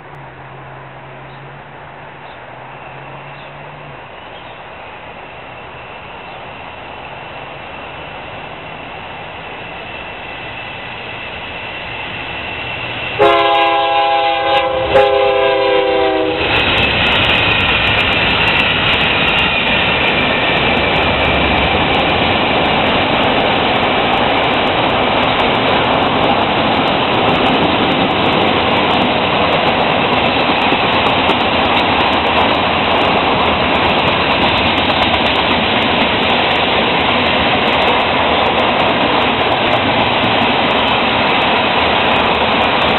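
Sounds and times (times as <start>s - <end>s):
freight train passing: 0.0s - 42.9s
locomotive horn blasts: 13.2s - 16.5s.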